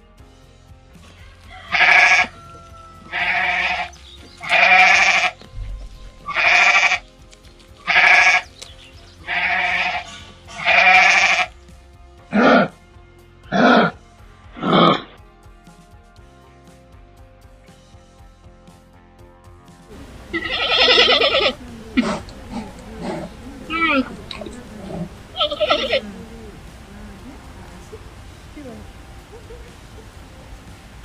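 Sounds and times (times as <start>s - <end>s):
soft background music: 0.0s - 31.0s
goat or sheep bleating: 1.7s - 5.5s, 6.2s - 7.1s, 7.8s - 11.6s, 12.3s - 12.8s, 13.5s - 15.2s, 20.0s - 26.8s.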